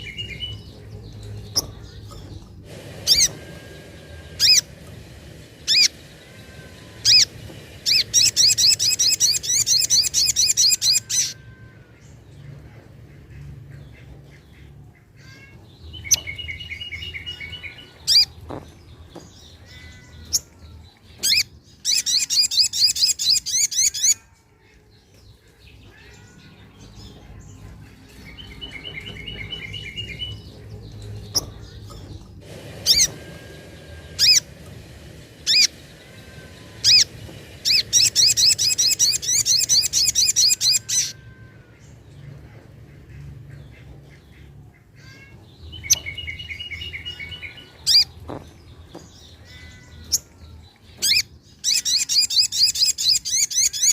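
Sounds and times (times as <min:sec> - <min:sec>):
bird calling with trills: 0:00.0 - 0:53.9.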